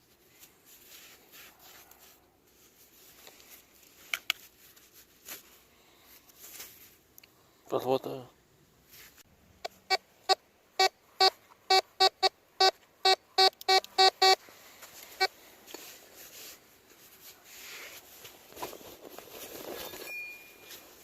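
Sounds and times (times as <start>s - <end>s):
faint rustling: 0.0s - 7.6s, 8.8s - 9.3s, 14.4s - 21.0s
metal detector beeps: 10.8s - 14.4s, 19.9s - 20.8s.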